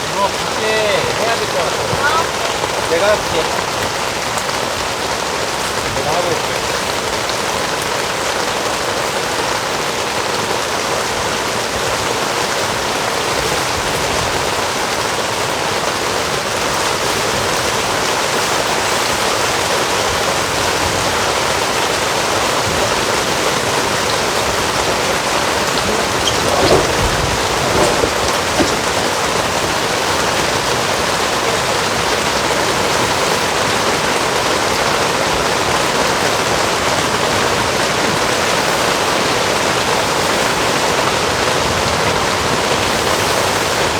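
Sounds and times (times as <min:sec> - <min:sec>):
heavy rain pouring: 0:00.0 - 0:43.9
short knocks: 0:25.7 - 0:29.3.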